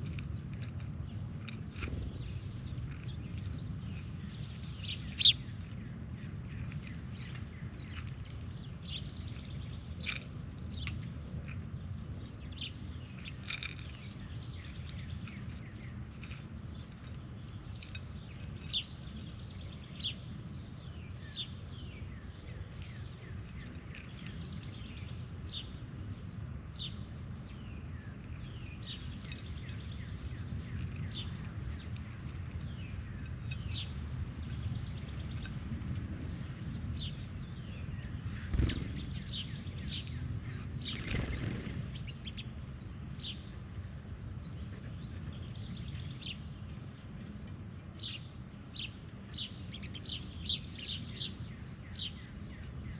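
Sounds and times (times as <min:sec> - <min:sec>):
birds chirping: 0:00.0 - 0:52.9
low background rumble: 0:00.0 - 0:52.9.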